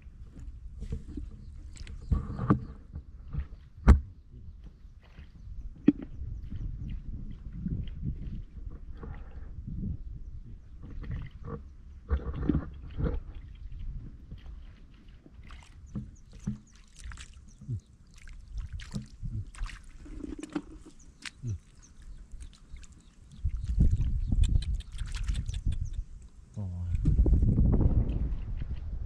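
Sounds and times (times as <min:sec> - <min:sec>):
water splashing and sloshing: 0:00.1 - 0:09.6, 0:10.5 - 0:26.6
low rumble: 0:25.5 - 0:29.0.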